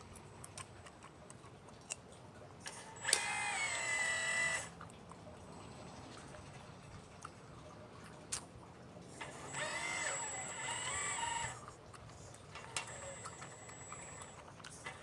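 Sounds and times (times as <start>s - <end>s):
electric motors whining: 2.7s - 4.8s, 9.2s - 11.7s, 12.5s - 15.0s.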